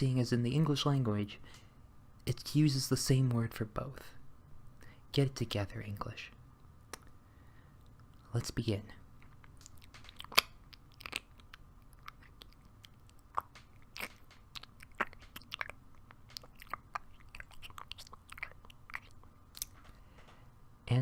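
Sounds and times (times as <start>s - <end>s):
wet mouth clicks: 6.9s - 7.1s, 9.4s - 19.8s
person chewing mouth noises: 9.2s - 19.9s.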